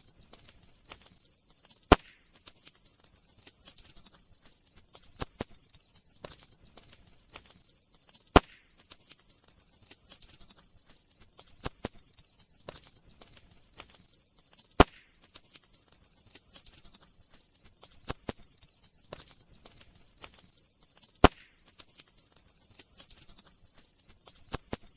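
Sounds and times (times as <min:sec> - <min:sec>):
faint hiss: 0:00.0 - 0:24.9
wood fire crackling: 0:00.0 - 0:24.9
sharp loud pops of fire: 0:01.9 - 0:02.4, 0:08.3 - 0:08.8, 0:14.8 - 0:15.2, 0:21.2 - 0:21.6.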